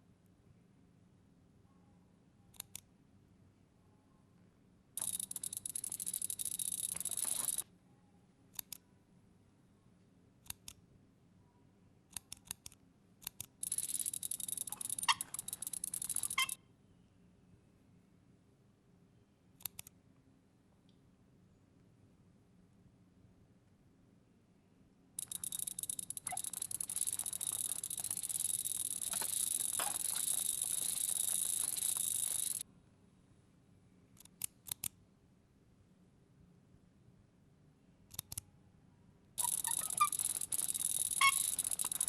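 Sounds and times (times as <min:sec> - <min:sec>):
rapid mechanical clicking: 0:05.0 - 0:07.6, 0:12.2 - 0:16.6, 0:25.2 - 0:32.6, 0:39.4 - 0:42.0.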